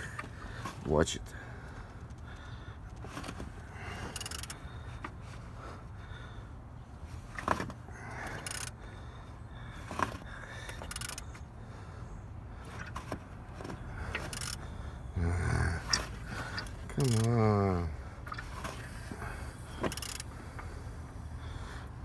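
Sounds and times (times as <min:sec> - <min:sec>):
low steady hum: 0:00.0 - 0:22.0
sharp metallic clicks: 0:15.9 - 0:17.4.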